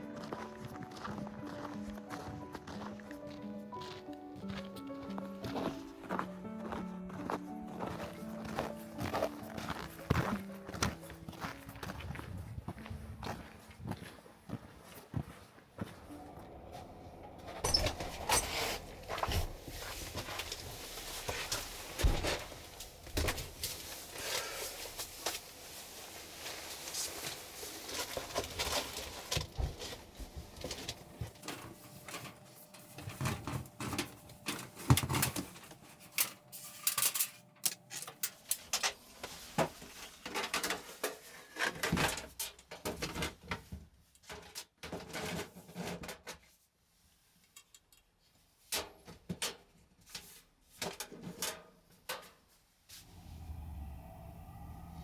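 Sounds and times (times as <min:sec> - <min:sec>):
low steady hum: 0:53.0 - 0:55.0.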